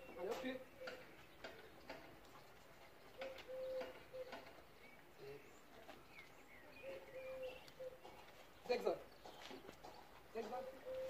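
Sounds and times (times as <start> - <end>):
low bird calls: 0.0 - 11.0
high bird chirps: 3.1 - 5.4, 6.1 - 10.1.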